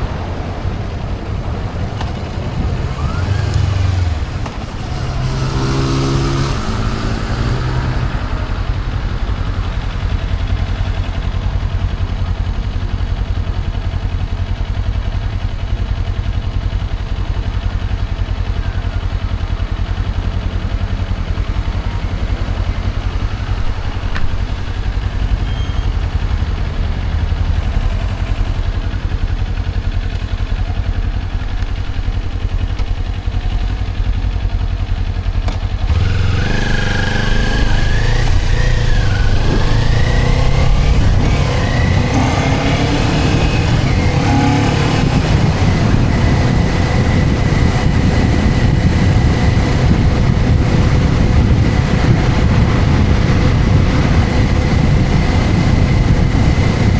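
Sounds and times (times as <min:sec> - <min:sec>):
wind noise: 0:00.0 - 0:11.2, 0:35.8 - 0:56.9
motorcycle engine rumble: 0:00.0 - 0:56.9
falling pitched tone: 0:35.9 - 0:47.8.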